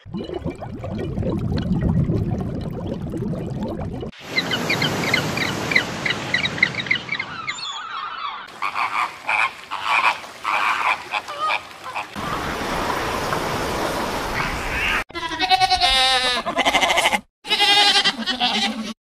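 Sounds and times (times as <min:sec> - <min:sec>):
water birds calling: 0:04.1 - 0:15.1.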